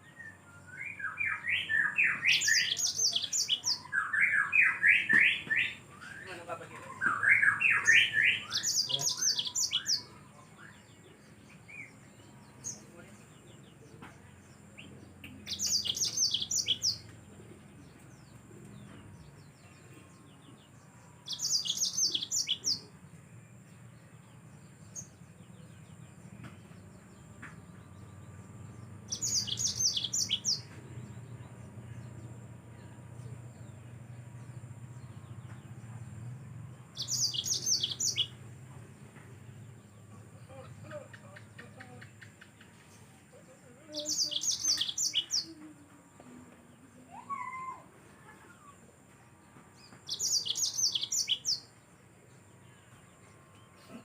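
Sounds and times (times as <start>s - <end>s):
canary twittering song: 0.0s - 13.8s, 14.4s - 23.2s, 23.8s - 32.2s, 33.5s - 38.4s, 43.8s - 45.6s, 49.8s - 51.8s.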